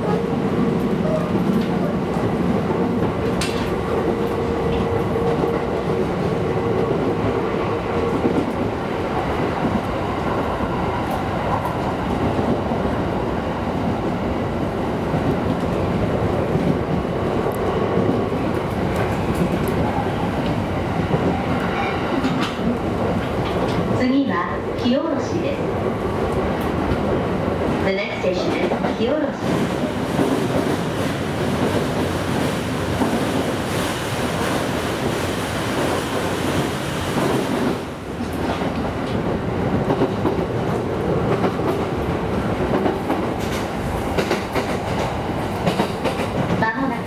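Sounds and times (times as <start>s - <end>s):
train wheels rumbling on rails: 0.0s - 47.0s
sharp clacks at rail joints: 21.3s - 23.9s, 42.7s - 46.6s.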